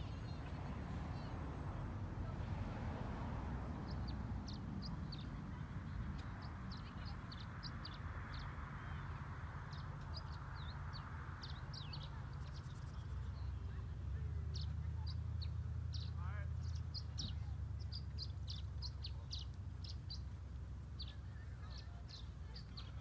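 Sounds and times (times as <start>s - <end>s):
birds chirping: 0.0s - 2.7s, 3.6s - 23.0s.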